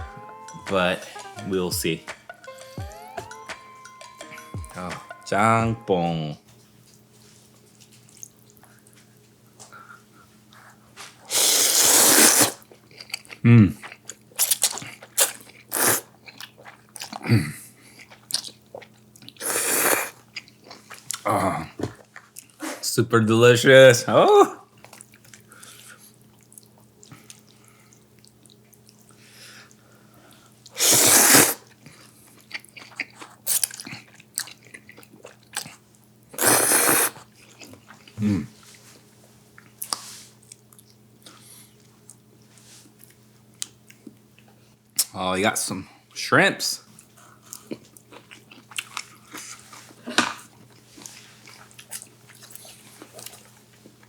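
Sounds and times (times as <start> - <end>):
chewing: 6.9 - 22.6, 24.8 - 42.2, 46.9 - 54.0
loud slurps of soup: 11.3 - 12.6, 14.4 - 16.1, 19.4 - 20.2, 30.7 - 31.7, 36.4 - 37.3.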